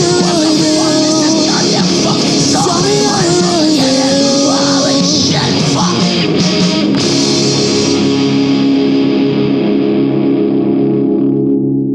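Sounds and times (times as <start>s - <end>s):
person singing: 0.0s - 6.6s
electric guitar chord sustained: 0.0s - 11.9s.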